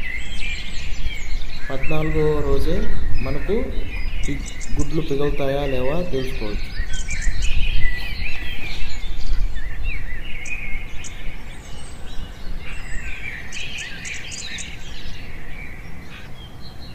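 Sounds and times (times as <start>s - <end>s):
small birds chirping: 0.0s - 16.9s
steady low rumble: 0.3s - 13.2s.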